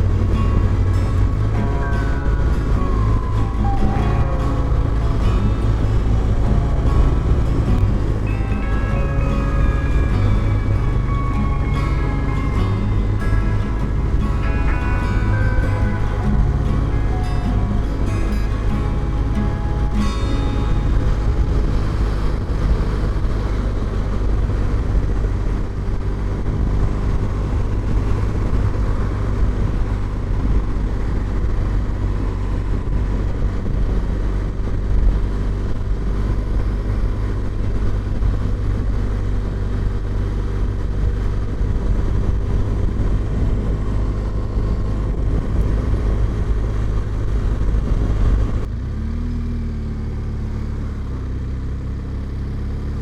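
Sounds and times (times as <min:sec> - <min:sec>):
motorcycle engine running: 0:00.0 - 0:53.0
wind rumble on microphone: 0:00.0 - 0:53.0.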